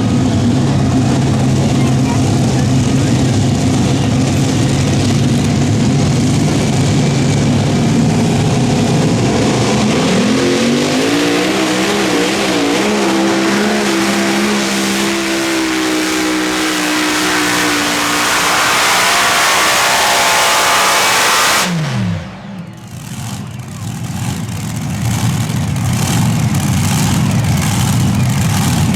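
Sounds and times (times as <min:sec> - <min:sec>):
pulling tractor engine at full throttle: 0:00.0 - 0:28.9.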